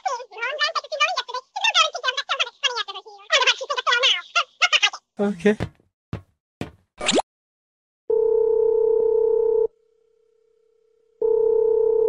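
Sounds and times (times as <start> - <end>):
telephone ringback tone: 8.1 - 9.7, 11.2 - 12.0.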